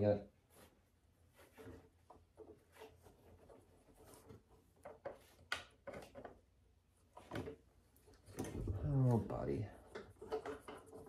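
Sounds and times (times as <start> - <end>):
plastic parts rustling and clicking: 7.2 - 11.0.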